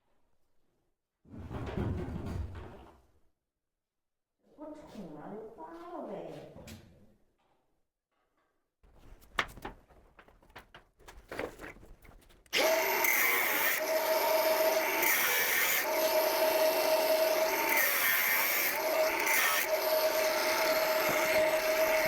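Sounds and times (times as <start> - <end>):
power tool running on wood: 12.5 - 22.0.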